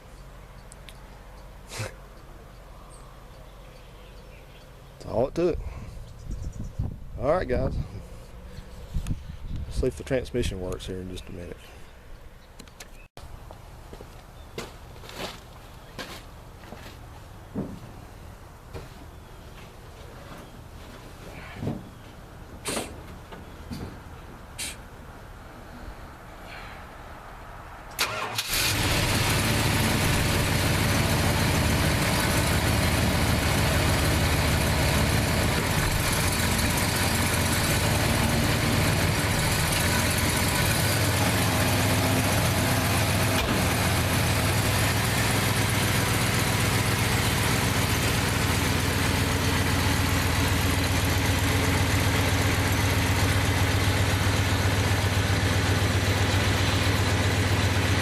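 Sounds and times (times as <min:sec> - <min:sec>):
car engine idling: 0:28.0 - 0:58.0.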